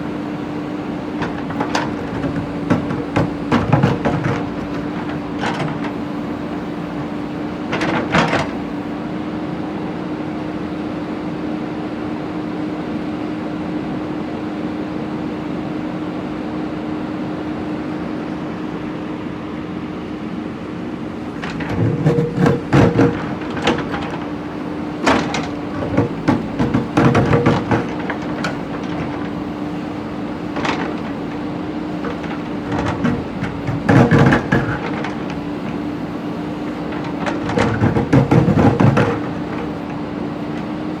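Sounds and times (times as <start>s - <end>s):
bucket clanking on bricks and stone: 0.1s - 8.8s, 21.3s - 41.0s
diesel engine running: 21.2s - 41.0s.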